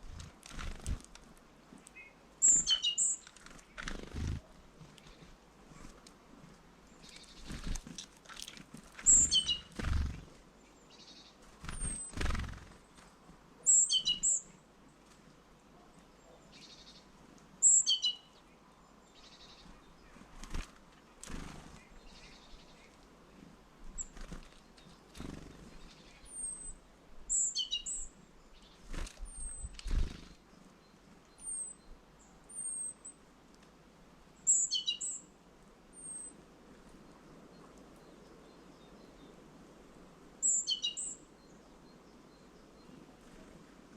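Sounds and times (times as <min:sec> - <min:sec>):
short high bird chirps: 0:02.0 - 0:03.2, 0:09.1 - 0:09.7.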